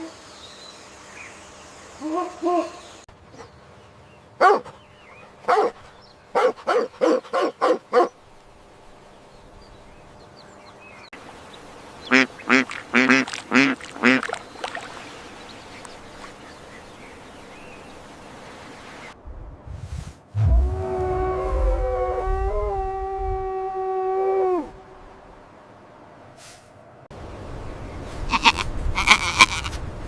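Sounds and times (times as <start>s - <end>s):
duck quacking: 12.1s - 14.4s, 28.3s - 29.8s.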